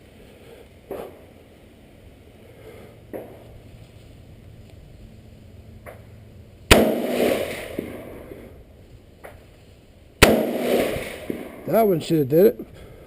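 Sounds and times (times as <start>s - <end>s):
gunshots with echo: 6.7s - 8.3s, 10.2s - 11.8s.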